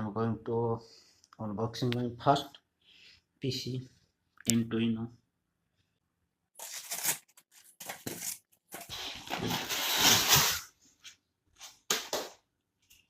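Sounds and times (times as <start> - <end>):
packaging tearing: 6.6 - 10.7
packaging crinkling and scraping: 6.6 - 12.2.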